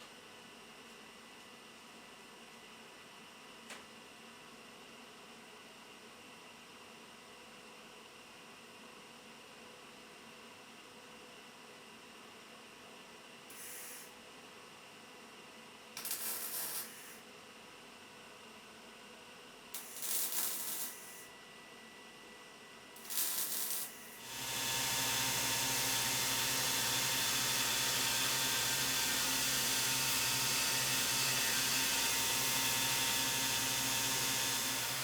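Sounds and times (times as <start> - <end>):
motor-driven tool hissing: 23.0 - 35.0.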